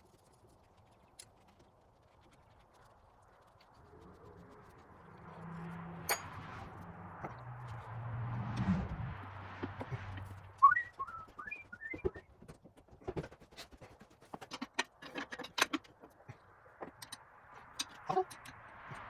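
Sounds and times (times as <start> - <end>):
low hum: 3.8 - 12.2
tools clicking and tapping: 6.1 - 7.4, 11.9 - 19.0
chirping whistle notes: 10.6 - 12.3.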